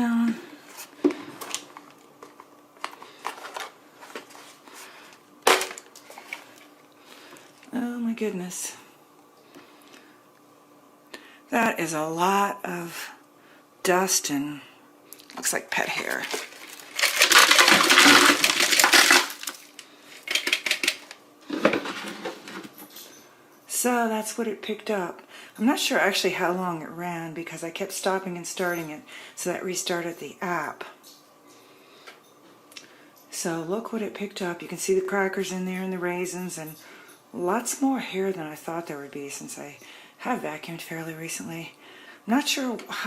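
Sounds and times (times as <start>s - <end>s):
debris rattling in plastic bin: 5.5s - 6.4s, 15.9s - 22.7s.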